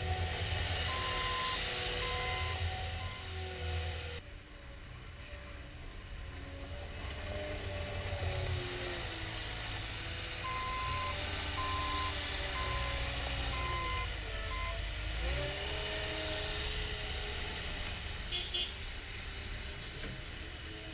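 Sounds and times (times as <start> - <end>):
loader diesel engine running: 0.0 - 4.2, 9.3 - 15.8
back-up alarm beeping: 0.9 - 3.3, 10.5 - 13.0.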